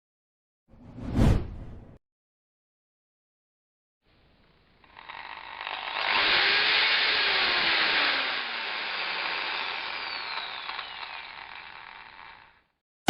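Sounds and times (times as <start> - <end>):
electric drill grinding: 4.4 - 12.8.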